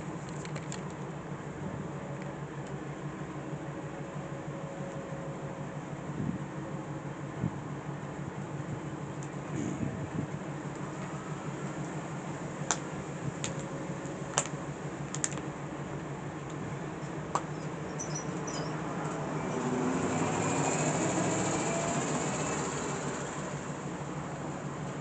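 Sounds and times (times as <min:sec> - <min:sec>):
diesel locomotive engine running: 0:00.0 - 0:25.0.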